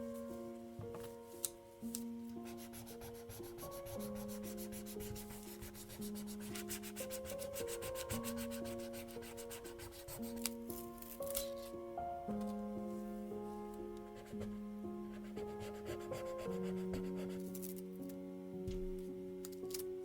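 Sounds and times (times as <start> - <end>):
soft piano-like background music: 0.0 - 20.0
rapid rubbing on paper: 2.4 - 10.5, 14.2 - 17.5.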